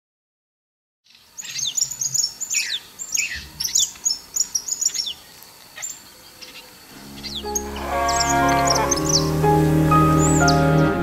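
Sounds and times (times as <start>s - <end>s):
birds chirping: 1.1s - 11.0s
soft music: 7.0s - 11.0s.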